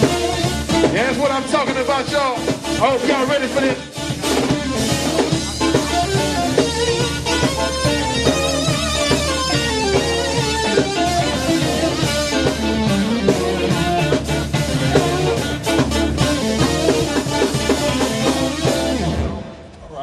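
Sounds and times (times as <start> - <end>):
funk band playing: 0.0 - 19.8
bass: 0.0 - 20.0
drum kit: 0.0 - 20.0
guitar: 0.0 - 20.0.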